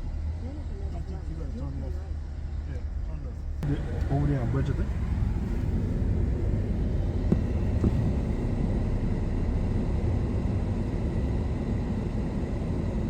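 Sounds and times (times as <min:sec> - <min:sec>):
low rumble: 0:03.5 - 0:13.0.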